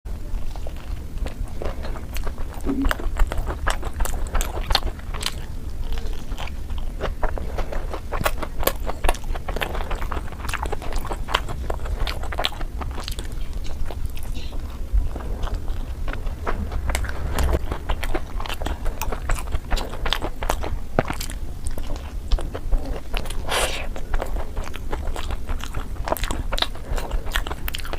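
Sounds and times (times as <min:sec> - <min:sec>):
low rumble: 0:00.1 - 0:27.9
person chewing crunchy food: 0:00.1 - 0:27.9
wet mouth sounds: 0:01.2 - 0:27.9.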